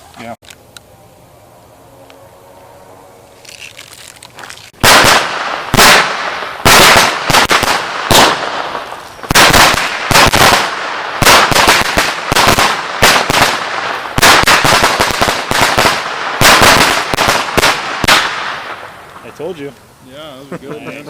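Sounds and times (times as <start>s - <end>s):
firecrackers banging: 3.4s - 19.6s.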